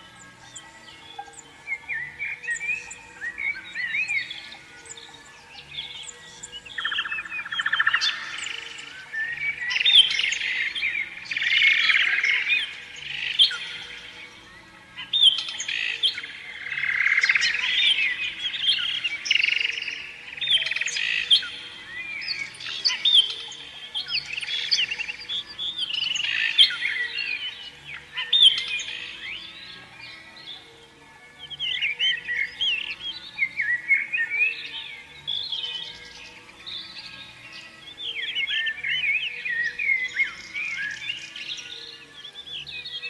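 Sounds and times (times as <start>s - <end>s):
canary singing: 0.0s - 30.6s.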